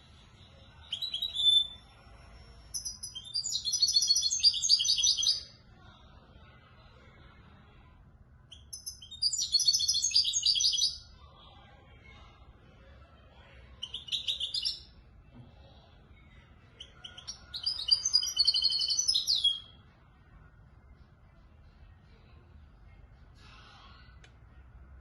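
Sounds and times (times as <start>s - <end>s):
goldfinch singing twittering notes: 2.8s - 5.4s, 17.0s - 19.6s.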